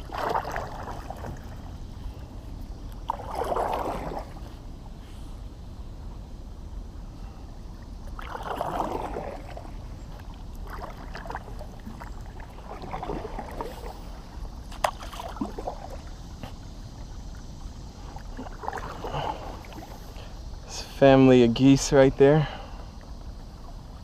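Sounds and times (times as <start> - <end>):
paddle strokes splashing water: 0.0 - 5.4, 7.7 - 20.7
low steady rumble: 0.0 - 24.0.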